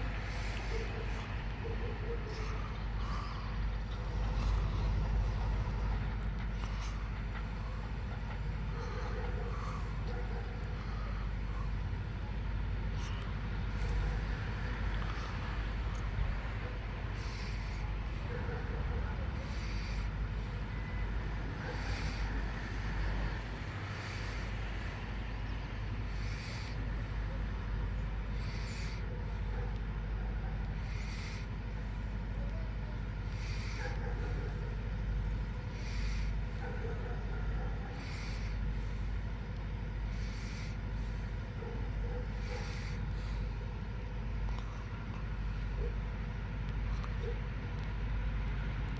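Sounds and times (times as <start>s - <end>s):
diesel train droning: 0.0s - 48.9s
train hiss: 17.2s - 27.1s.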